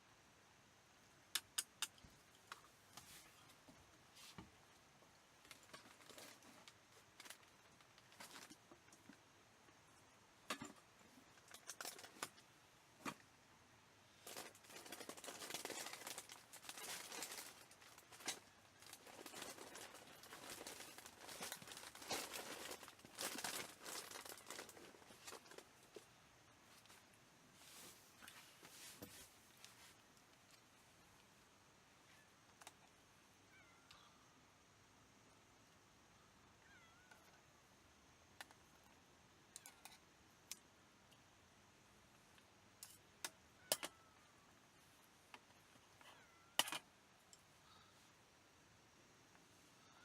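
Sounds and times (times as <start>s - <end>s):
packaging crinkling and rustling: 5.4s - 8.8s, 14.2s - 26.1s.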